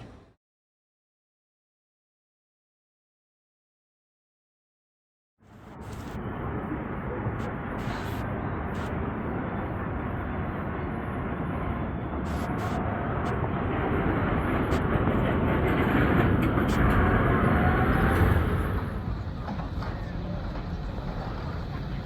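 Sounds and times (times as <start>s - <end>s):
tram passing: 5.5s - 22.0s.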